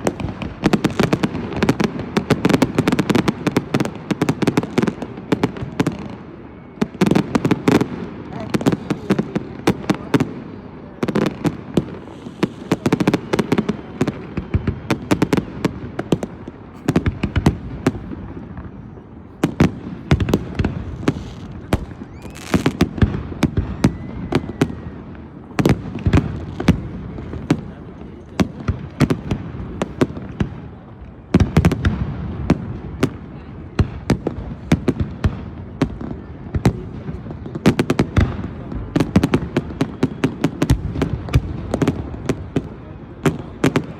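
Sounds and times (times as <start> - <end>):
fireworks cracking and banging: 0.0 - 43.9.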